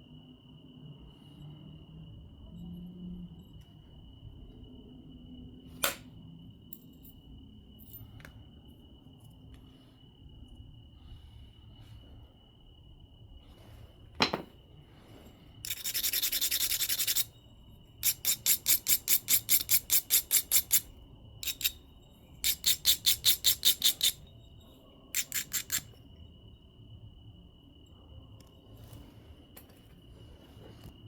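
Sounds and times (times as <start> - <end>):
stone tap: 14.2 - 14.5
stone scraping and rasping: 15.7 - 17.3, 18.0 - 21.8, 22.4 - 24.2, 25.2 - 25.8.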